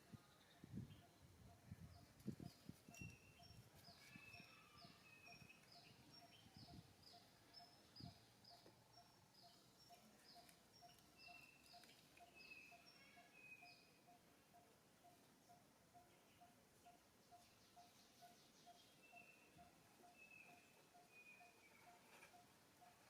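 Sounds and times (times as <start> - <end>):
bird trill: 2.4 - 8.2, 9.0 - 23.0.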